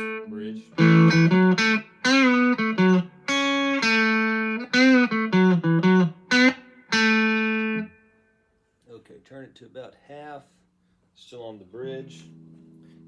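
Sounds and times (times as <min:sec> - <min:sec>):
distorted electric guitar chords: 0:00.0 - 0:08.0, 0:12.0 - 0:13.0.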